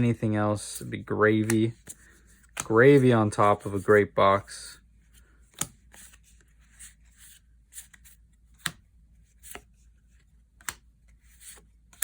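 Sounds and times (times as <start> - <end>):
light card rustling: 0.8 - 4.2, 5.1 - 12.0
trading cards snapping: 1.4 - 2.9, 5.5 - 6.1, 8.6 - 8.8, 10.6 - 10.9.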